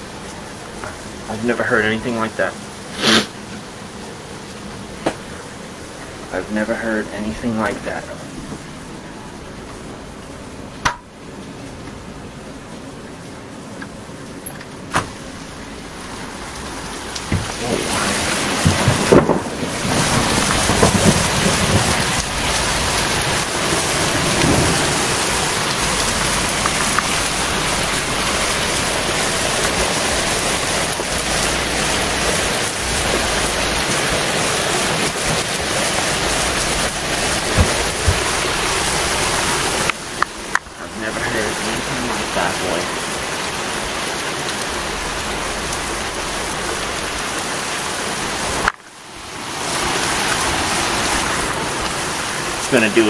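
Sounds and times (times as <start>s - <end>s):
heavy rain pouring: 0.0s - 53.0s
thunder rumbling: 14.9s - 48.7s.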